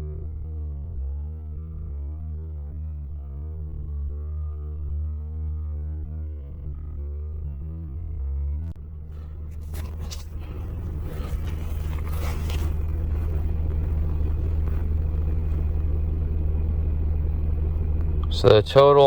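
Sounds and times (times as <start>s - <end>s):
car interior engine rumble: 0.0s - 19.0s
faint handling rustles: 9.1s - 15.7s.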